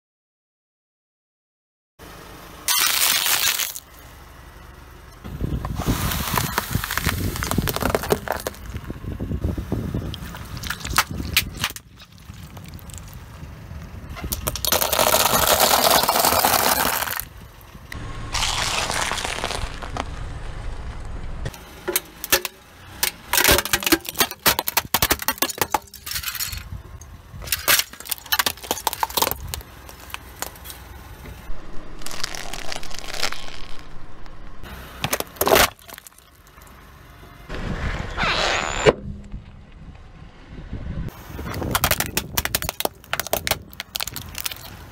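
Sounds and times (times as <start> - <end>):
tyre squishing soft toys: 5.7 - 8.8, 18.3 - 20.1, 32.0 - 34.0
plastic cracking and snapping: 41.6 - 44.8.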